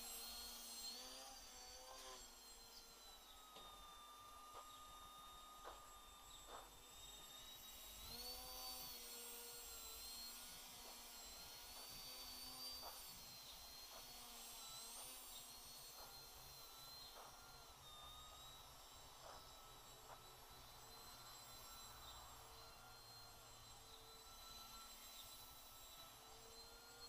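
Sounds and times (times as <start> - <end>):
quadcopter motors whining: 0.0 - 27.0.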